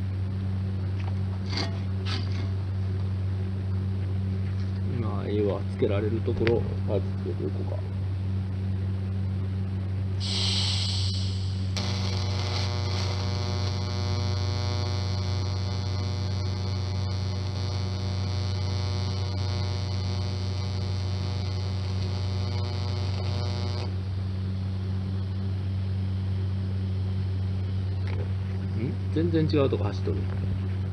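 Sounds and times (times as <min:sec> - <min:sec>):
welding machine humming: 0:10.1 - 0:30.9
brief hiss: 0:10.2 - 0:11.7
welding arc buzzing: 0:10.2 - 0:28.8.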